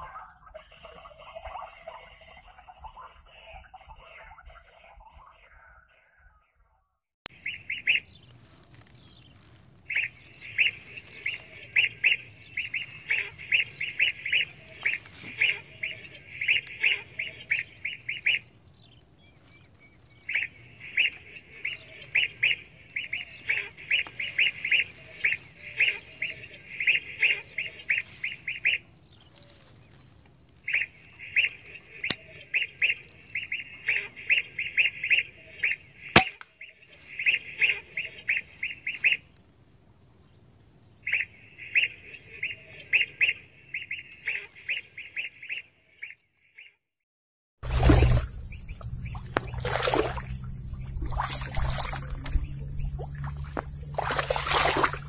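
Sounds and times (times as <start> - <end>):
bird honking calls: 7.4 - 18.5, 20.0 - 29.5, 30.6 - 39.3, 41.0 - 46.8, 47.6 - 55.0.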